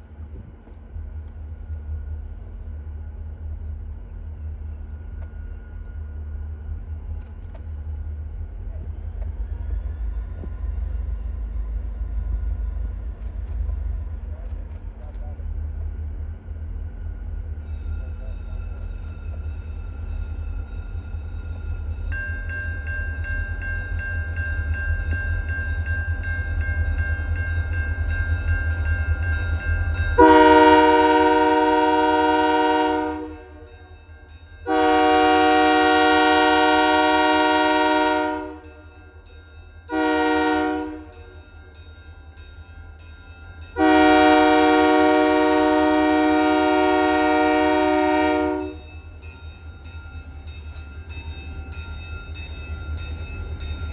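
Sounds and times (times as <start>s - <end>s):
diesel locomotives rumbling: 0.0s - 53.9s
train air horn blasts: 30.2s - 33.7s, 34.6s - 38.8s, 39.9s - 41.3s, 43.8s - 48.8s.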